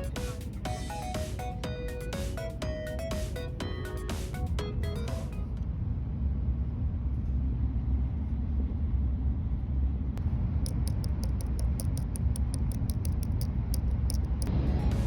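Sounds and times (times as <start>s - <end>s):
train rumble inside cabin: 0.0s - 15.0s
fast even ticks: 10.6s - 14.5s.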